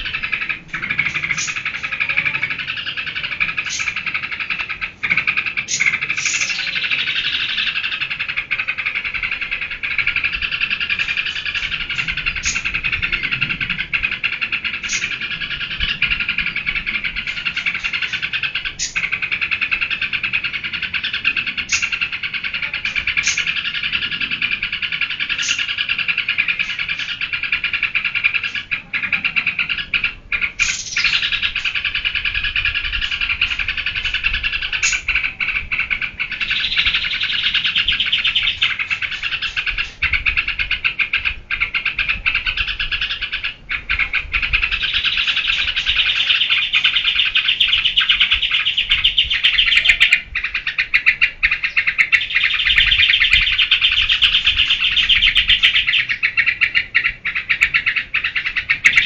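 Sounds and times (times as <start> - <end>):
bulbul singing rapid chatter: 0.0 - 59.0.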